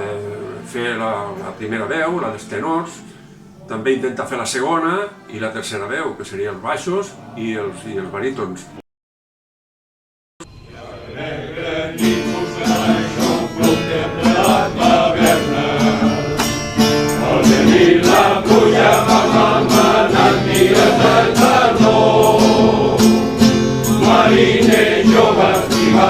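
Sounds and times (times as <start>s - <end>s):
choir singing: 0.0s - 8.8s, 10.4s - 26.0s
strummed guitar: 10.4s - 26.0s.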